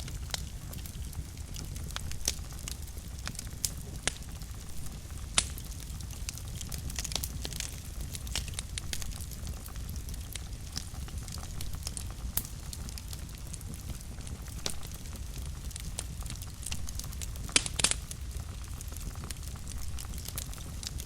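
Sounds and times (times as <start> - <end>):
fire crackling and popping: 0.0 - 21.0
low rumble of fire: 0.0 - 21.0.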